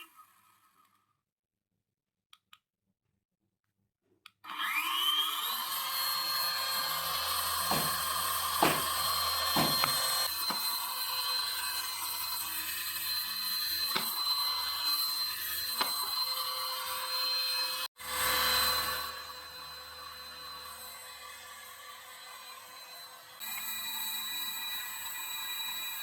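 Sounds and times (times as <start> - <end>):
small motor whining: 4.4 - 26.0.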